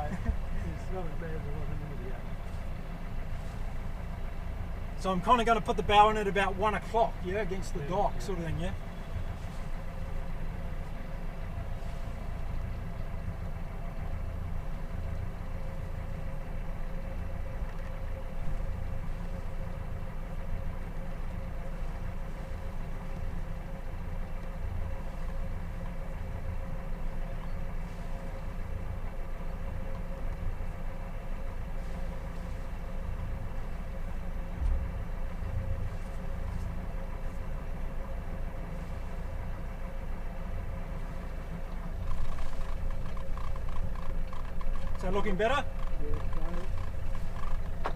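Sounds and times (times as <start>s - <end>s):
boat engine running: 0.0s - 47.9s
wind rumbling on microphone: 33.3s - 36.8s.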